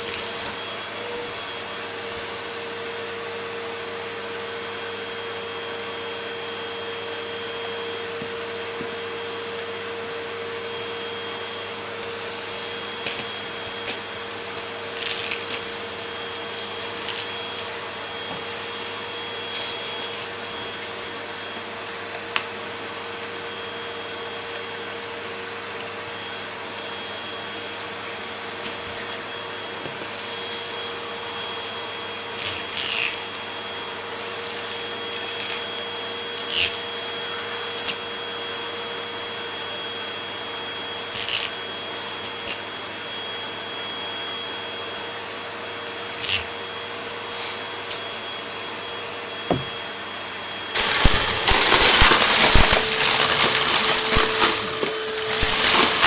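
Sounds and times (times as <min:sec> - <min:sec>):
vacuum cleaner running: 0:00.0 - 0:56.0
debris crackling in vacuum: 0:50.8 - 0:56.0.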